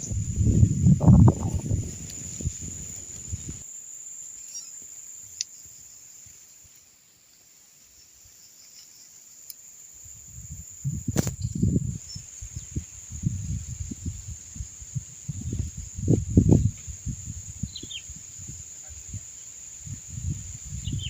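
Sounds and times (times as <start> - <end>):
wind buffeting microphone: 0.0 - 3.6, 10.1 - 21.0
faint insect chirps: 0.0 - 21.0
high-pitched insect drone: 0.0 - 21.0.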